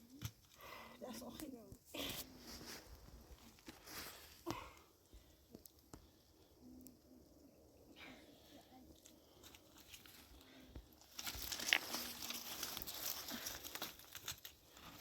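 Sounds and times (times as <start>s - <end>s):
crinkling crackling clicks: 11.0s - 15.0s.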